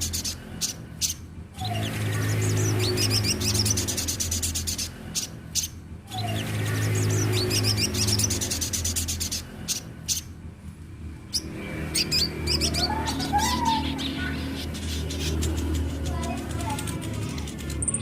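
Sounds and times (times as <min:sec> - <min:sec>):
sunbird twittering song: 0:00.0 - 0:10.3, 0:11.3 - 0:18.0
steady low hum: 0:00.0 - 0:18.0.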